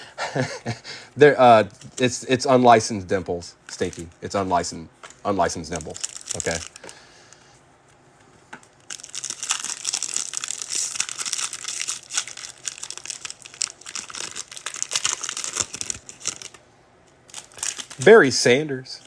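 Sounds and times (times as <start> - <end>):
foil wrapper tearing and crinkling: 5.7 - 6.9, 8.8 - 16.6, 17.3 - 18.2.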